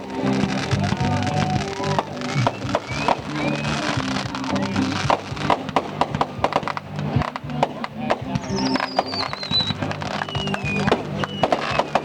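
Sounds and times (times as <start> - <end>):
fireworks popping and banging: 0.0 - 12.0
music: 0.0 - 12.0
high falling whistle: 1.0 - 4.8, 8.4 - 12.0.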